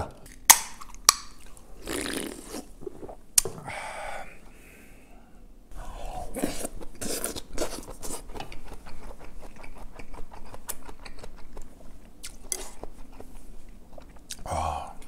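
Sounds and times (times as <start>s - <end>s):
wet chewing mouth clicks: 6.3s - 14.5s.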